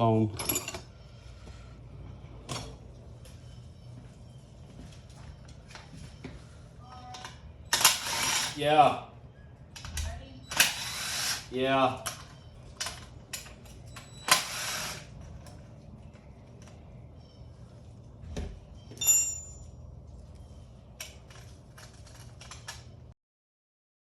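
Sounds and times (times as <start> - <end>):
metallic clink: 18.9 - 19.8.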